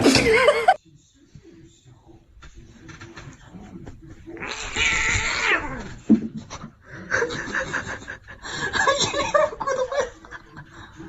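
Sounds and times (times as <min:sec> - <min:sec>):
person chuckling: 0:00.0 - 0:00.8.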